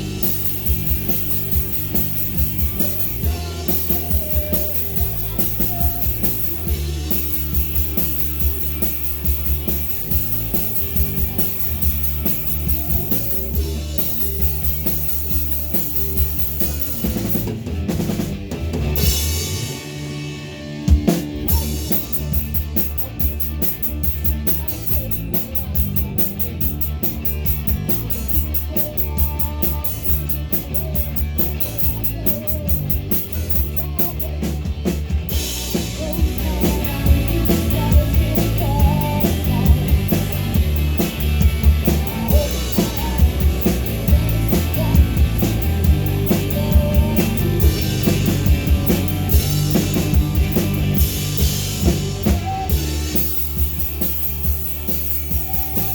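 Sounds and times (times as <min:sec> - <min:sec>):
cymbal beat: 0:00.0 - 0:17.5
drum kit: 0:00.0 - 0:55.9
live rock band playing: 0:00.0 - 0:55.9.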